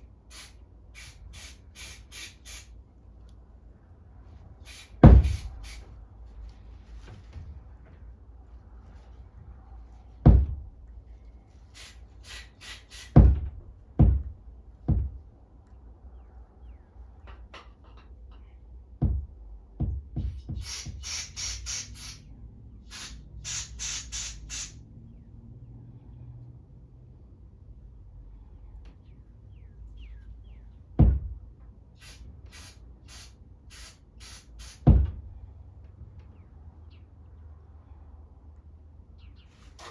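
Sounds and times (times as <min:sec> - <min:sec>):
short hissing spray bursts: 0:00.0 - 0:02.8, 0:04.6 - 0:05.9, 0:11.6 - 0:13.2, 0:20.6 - 0:24.8, 0:32.0 - 0:34.9
hard knocks on a hard surface: 0:05.0 - 0:05.6, 0:10.2 - 0:10.7, 0:13.2 - 0:15.3, 0:19.0 - 0:21.0, 0:31.0 - 0:31.4, 0:34.8 - 0:35.3.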